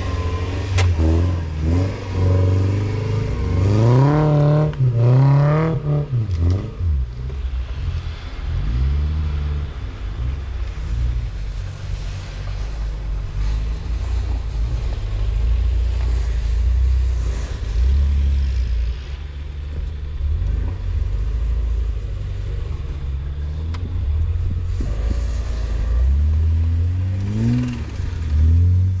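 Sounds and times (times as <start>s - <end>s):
off-road vehicle engine rumbling: 0.0s - 29.0s.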